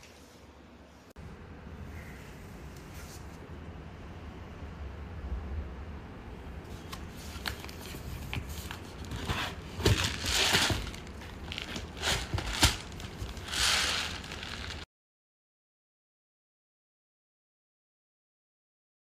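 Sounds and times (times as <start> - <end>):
plastic packaging crinkling and tearing: 9.0 - 14.8.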